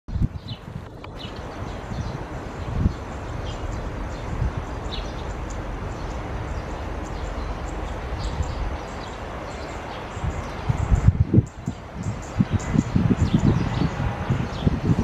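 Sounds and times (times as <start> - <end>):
birds chirping: 0.1 - 15.0
wind rumbling on microphone: 0.1 - 15.0
insects chirping: 1.2 - 12.8.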